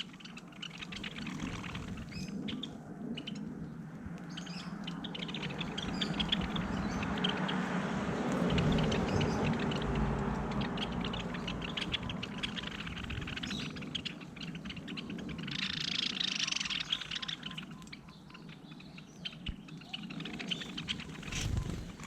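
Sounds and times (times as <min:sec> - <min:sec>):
low background rumble: 0:00.0 - 0:16.2
small birds chirping: 0:00.0 - 0:22.0.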